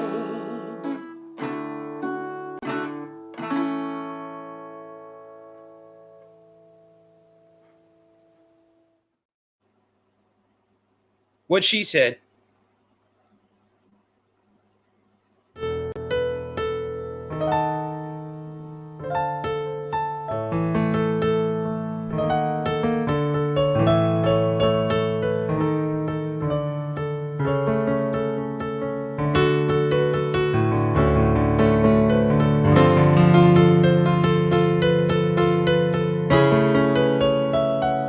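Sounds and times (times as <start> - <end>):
acoustic guitar strumming: 0.0 - 7.8, 15.6 - 38.0
electric piano chords: 15.6 - 38.0.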